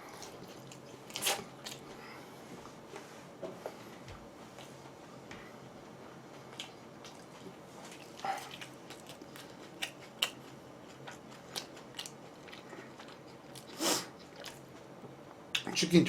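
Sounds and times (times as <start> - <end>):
chewing and biting food: 0.0 - 1.9, 6.5 - 14.9.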